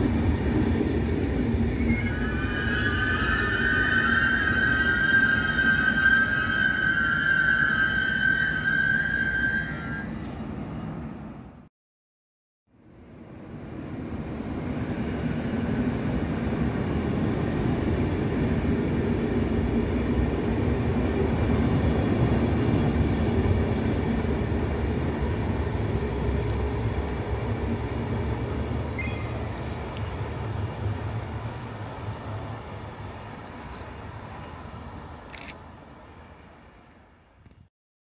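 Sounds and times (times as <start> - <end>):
electric train running past: 0.0 - 11.6, 12.8 - 35.2.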